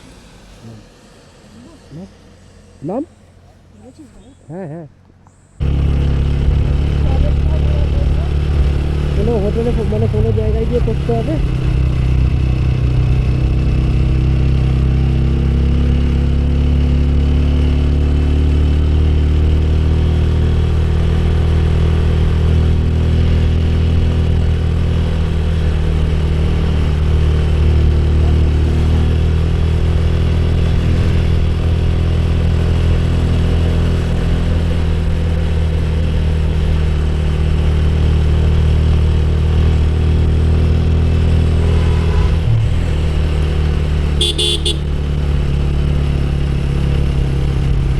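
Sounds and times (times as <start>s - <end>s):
rush of noise: 0.0s - 3.8s
motorcycle engine running: 5.5s - 47.9s.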